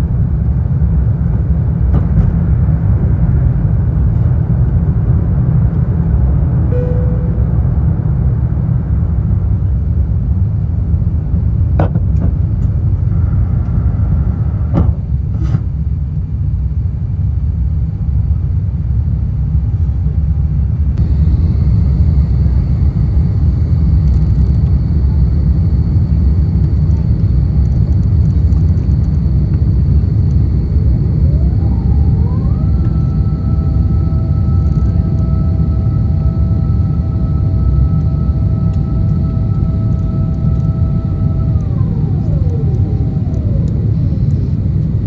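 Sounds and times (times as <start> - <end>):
airliner cabin rumble: 0.0 - 16.2, 17.9 - 45.0
tones rising in pitch: 6.7 - 8.2, 21.0 - 45.0
high steady whine: 6.7 - 9.2, 20.9 - 45.0.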